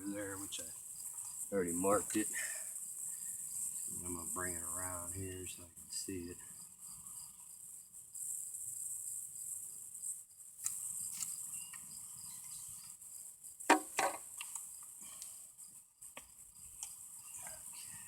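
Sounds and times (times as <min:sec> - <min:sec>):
crickets buzzing: 0:00.0 - 0:18.0
sharp knocks: 0:13.7 - 0:14.2.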